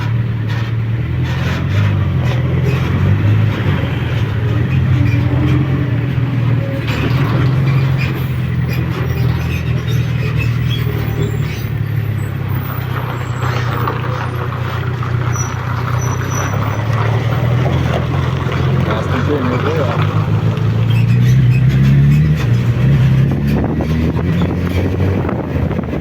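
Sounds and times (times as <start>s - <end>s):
wind rushing over microphone: 22.5s - 26.0s.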